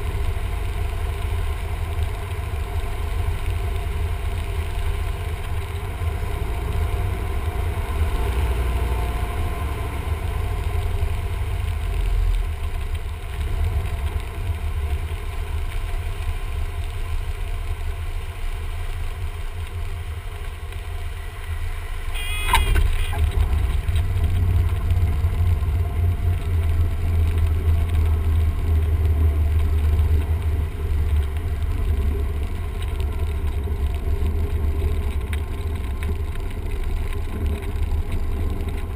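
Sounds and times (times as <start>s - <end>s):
brief high chirp: 22.2s - 23.2s.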